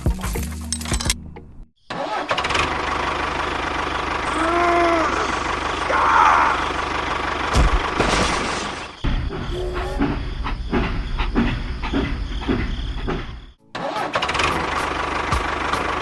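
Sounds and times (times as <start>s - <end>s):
engine running with low throb: 2.4s - 13.3s, 14.3s - 16.0s.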